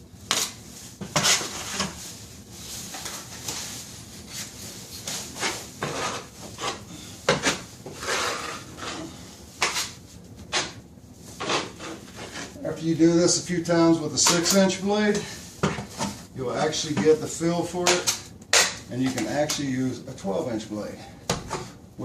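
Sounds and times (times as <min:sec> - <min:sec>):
drywall knife scraping compound: 0:00.3 - 0:02.0, 0:02.9 - 0:10.8, 0:11.4 - 0:12.6.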